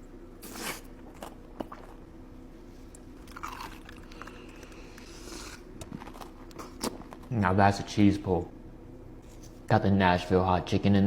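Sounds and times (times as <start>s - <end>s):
crunchy biting and chewing: 0.4s - 2.0s, 3.2s - 7.3s.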